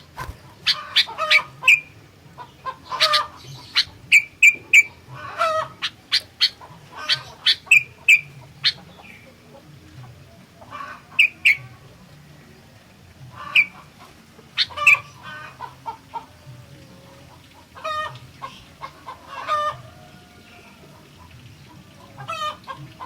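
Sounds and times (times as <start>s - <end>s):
bird chattering calls: 0.0s - 9.4s, 10.6s - 11.7s, 13.3s - 16.2s.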